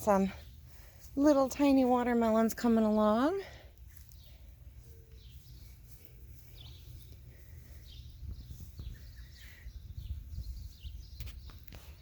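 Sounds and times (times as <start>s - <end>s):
faint bird chirps: 4.0s - 12.0s.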